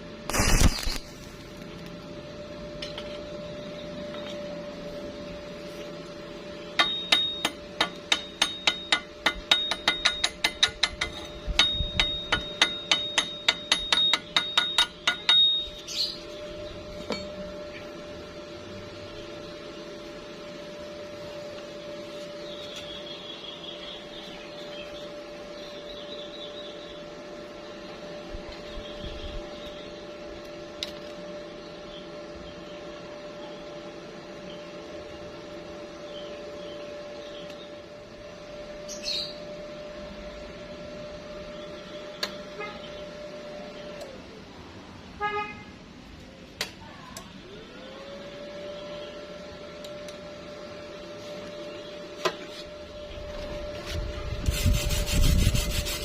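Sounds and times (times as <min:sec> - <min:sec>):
steady hum: 0:00.0 - 0:56.0
hammer striking steel: 0:06.7 - 0:15.8, 0:17.0 - 0:17.4.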